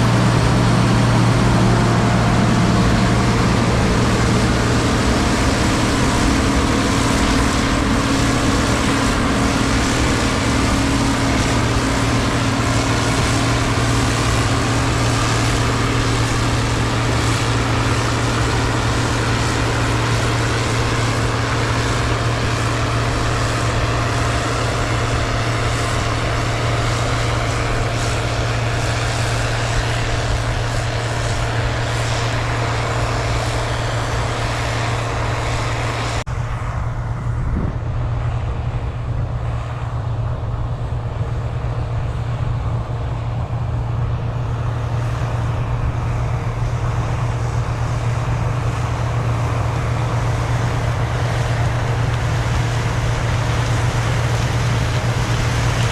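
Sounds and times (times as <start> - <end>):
diesel engine droning: 0.0 - 55.9.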